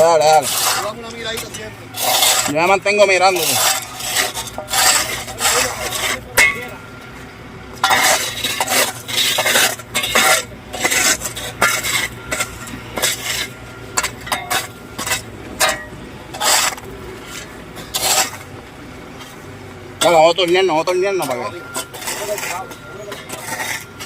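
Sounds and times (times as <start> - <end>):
metal tool scraping asphalt: 0.0 - 6.8, 7.8 - 18.5, 19.1 - 24.0
low machine hum: 0.0 - 24.0.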